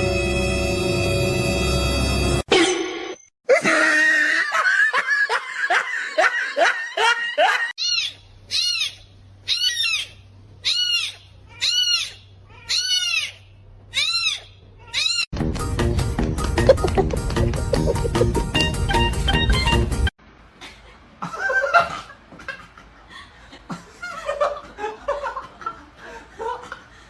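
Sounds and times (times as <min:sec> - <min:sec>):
music: 0:00.0 - 0:02.5, 0:15.4 - 0:20.1
animal high-pitched calls: 0:07.8 - 0:15.3.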